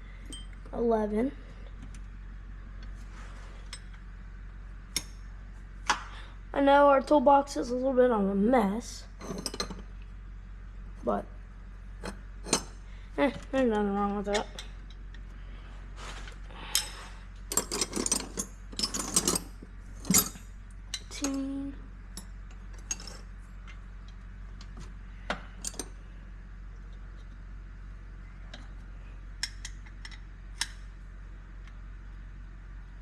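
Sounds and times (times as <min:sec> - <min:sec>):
metal tools clinking in toolbox: 0:16.8 - 0:21.4.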